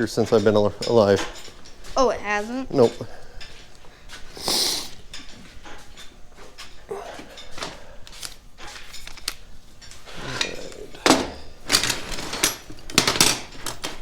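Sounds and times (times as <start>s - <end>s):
metal parts clinking and knocking: 7.4s - 14.0s
metal clatter: 8.6s - 14.0s.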